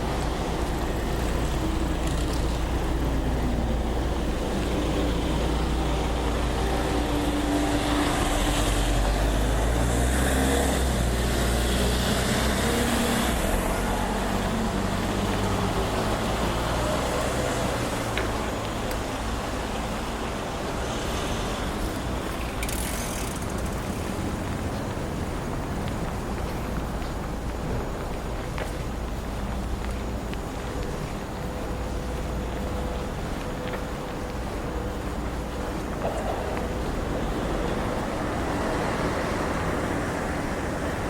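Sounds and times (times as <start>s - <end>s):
vehicle passing close: 0.0s - 20.1s
road traffic passing: 0.0s - 41.0s.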